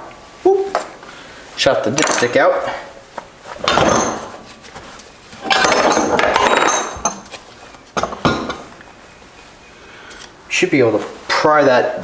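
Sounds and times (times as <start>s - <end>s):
metal tools clinking on workbench: 2.0s - 2.5s, 3.6s - 4.4s, 5.4s - 7.4s.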